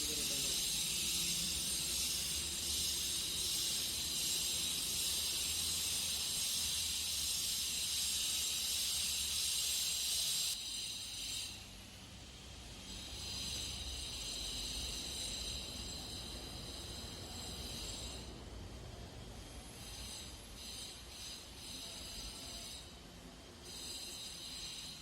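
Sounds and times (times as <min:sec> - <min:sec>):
compressed-air blower hissing: 0:00.0 - 0:18.4.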